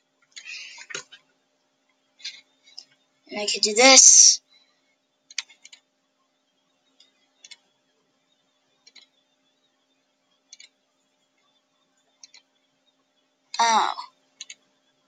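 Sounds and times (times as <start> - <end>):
faint computer mouse clicks: 8.8 - 9.1, 10.5 - 10.7, 12.2 - 12.5, 14.4 - 14.6.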